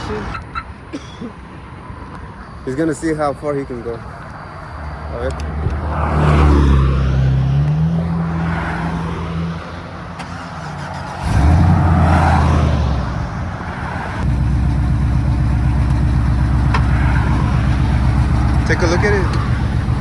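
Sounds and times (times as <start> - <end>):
vehicle engine running: 9.6 - 20.0.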